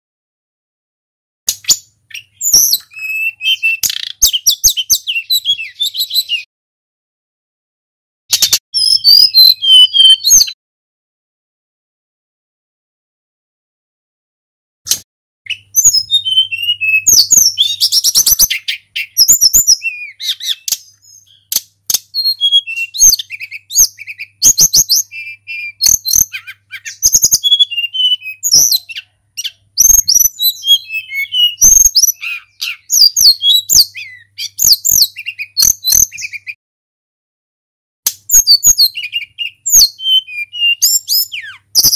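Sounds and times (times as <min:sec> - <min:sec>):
flycatcher singing: 0:01.6 - 0:06.5, 0:08.4 - 0:10.6, 0:15.5 - 0:36.6, 0:38.3 - 0:41.9.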